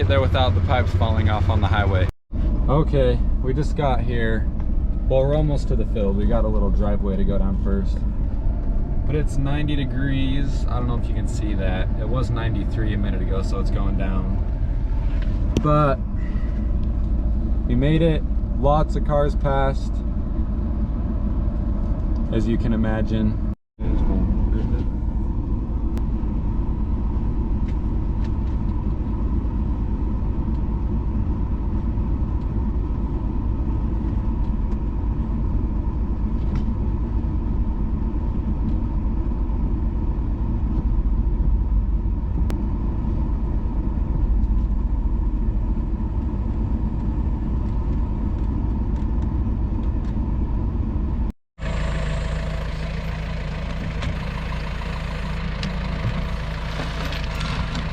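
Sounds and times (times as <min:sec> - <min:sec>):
engine idling: 0:00.0 - 0:57.9
vehicle engine rumble: 0:00.0 - 0:57.9.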